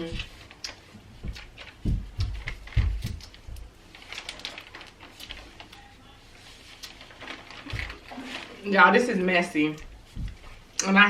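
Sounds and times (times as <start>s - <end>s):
low thumps: 1.2s - 3.7s.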